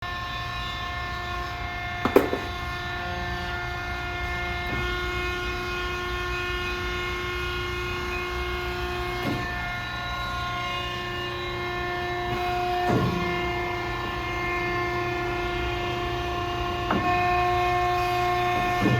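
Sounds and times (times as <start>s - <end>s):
sharp knock: 2.1s - 2.5s.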